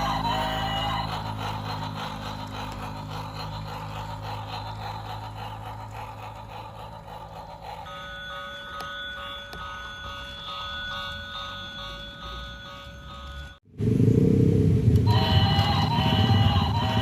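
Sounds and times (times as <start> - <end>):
model train motor hum: 0.0 - 13.6, 15.0 - 17.0
wheels clicking on rails: 0.0 - 13.6, 14.9 - 17.0
chord of high tones: 7.8 - 13.6, 15.1 - 17.0.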